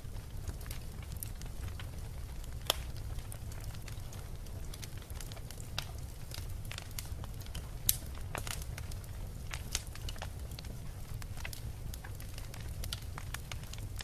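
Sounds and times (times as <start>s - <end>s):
bonfire crackling: 0.0s - 14.0s.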